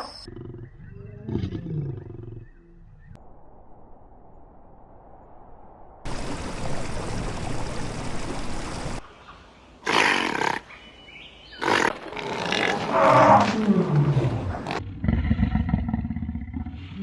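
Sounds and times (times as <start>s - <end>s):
big cat roaring and snarling: 9.9s - 10.6s, 11.6s - 17.0s.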